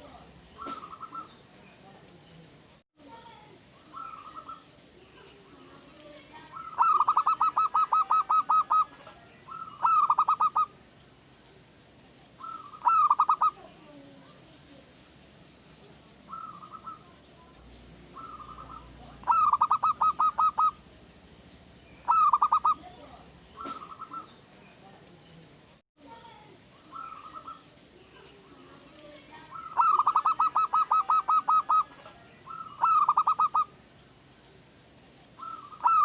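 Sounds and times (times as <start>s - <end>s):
dove cooing: 0.0s - 1.4s, 3.8s - 4.7s, 6.5s - 10.8s, 12.4s - 13.8s, 16.3s - 17.2s, 18.0s - 20.9s, 22.0s - 24.4s, 26.8s - 27.7s, 29.4s - 33.7s, 35.4s - 36.0s.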